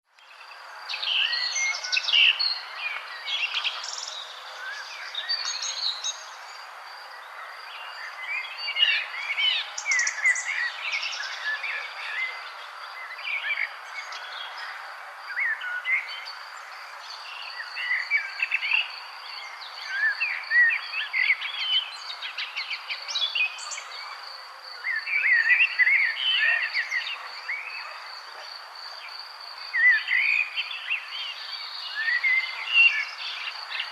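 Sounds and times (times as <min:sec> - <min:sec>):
songbirds chirping and singing: 0:00.1 - 0:33.9.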